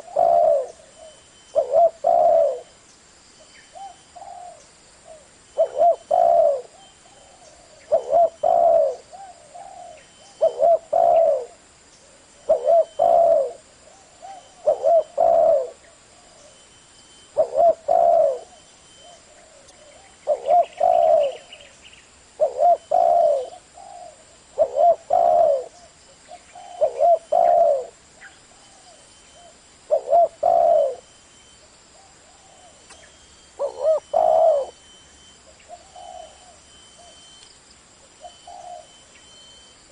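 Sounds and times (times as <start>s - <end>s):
dove cooing: 0.0s - 2.7s, 3.7s - 16.6s, 17.3s - 21.7s, 22.4s - 31.1s, 31.9s - 37.4s, 38.1s - 39.6s.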